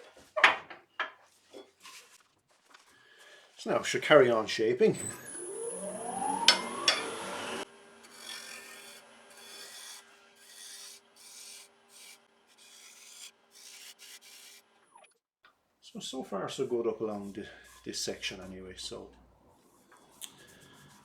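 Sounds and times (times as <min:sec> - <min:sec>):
wood lathe motor humming: 0:05.0 - 0:12.2
gouge cutting wood hiss: 0:08.1 - 0:14.6.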